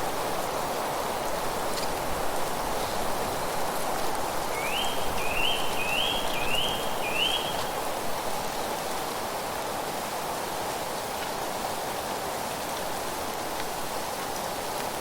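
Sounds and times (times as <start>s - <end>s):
steady rushing nature ambience: 0.0s - 15.0s
bird whistling rising notes: 4.6s - 7.6s.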